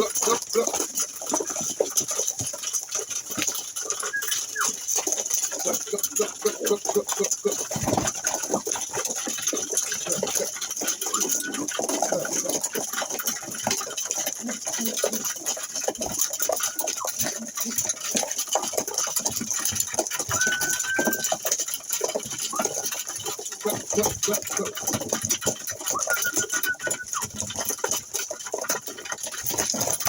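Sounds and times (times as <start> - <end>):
pigeon wings fluttering: 0.0 - 30.0.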